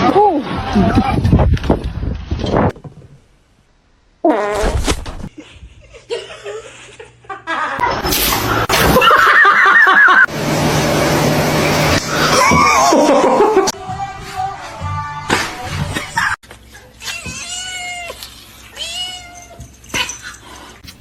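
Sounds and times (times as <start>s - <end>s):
loud human laughter: 5.3s - 8.0s, 8.8s - 10.3s, 12.1s - 13.7s
music: 13.8s - 16.3s.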